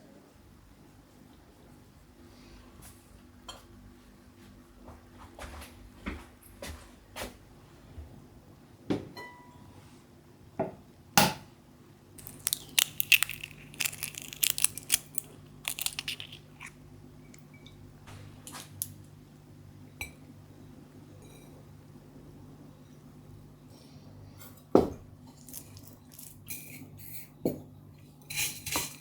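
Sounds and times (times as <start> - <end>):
crinkling and crunching: 12.2 - 17.4, 18.4 - 19.0, 25.3 - 26.7.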